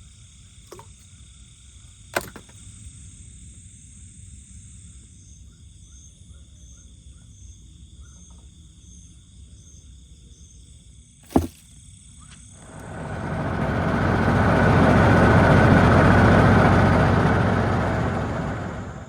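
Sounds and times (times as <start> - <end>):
insects trilling and chirping: 0.0 - 12.8.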